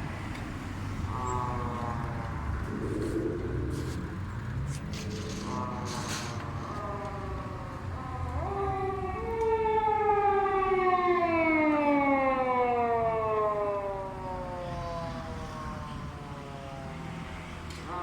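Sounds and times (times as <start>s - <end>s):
police car siren wailing: 5.1s - 18.0s.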